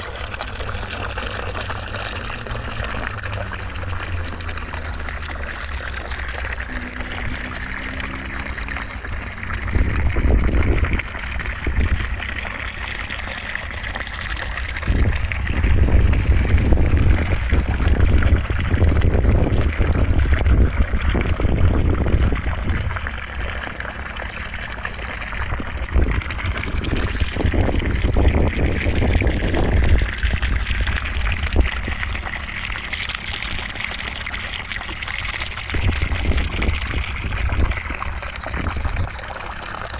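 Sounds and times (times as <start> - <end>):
deep rumble: 8.5 - 12.2, 14.8 - 23.2.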